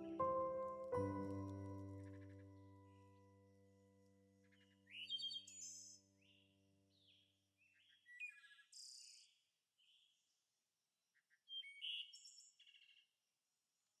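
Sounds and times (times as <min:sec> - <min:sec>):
soft sustained music tone: 0:00.0 - 0:04.8.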